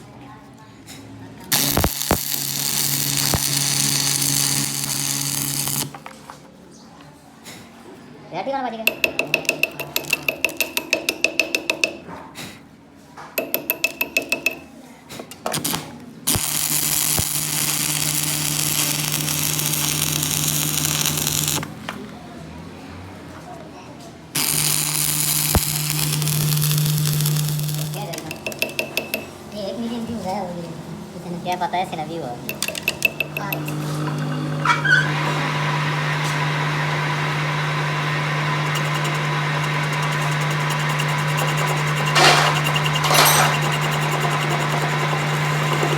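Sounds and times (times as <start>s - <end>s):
welding crackling hiss: 1.5s - 5.9s, 15.6s - 21.7s, 24.4s - 28.2s
metal tapped with ringing tick: 8.9s - 12.0s, 13.4s - 14.6s, 28.3s - 29.3s, 32.5s - 33.8s
machine humming: 24.4s - 29.6s, 32.4s - 45.9s.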